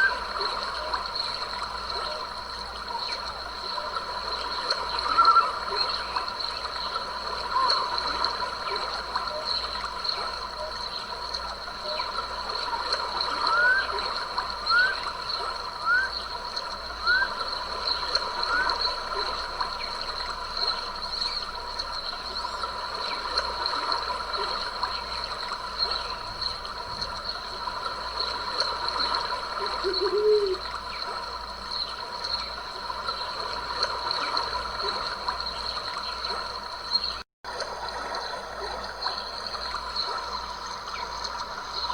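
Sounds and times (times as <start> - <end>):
stream running: 0.0 - 41.9
low animal call: 29.8 - 30.6.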